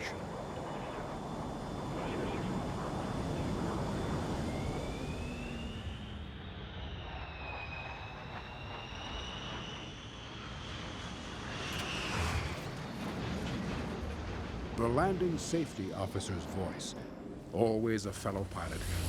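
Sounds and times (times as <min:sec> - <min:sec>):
jet engine whine: 0:00.0 - 0:19.0
steady engine rumble: 0:17.0 - 0:19.0.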